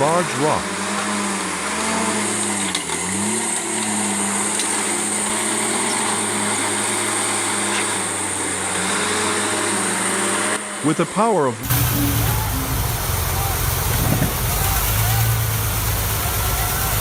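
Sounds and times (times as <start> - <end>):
bulldozer diesel engine under load: 0.0 - 17.0
machinery hiss: 11.6 - 17.0.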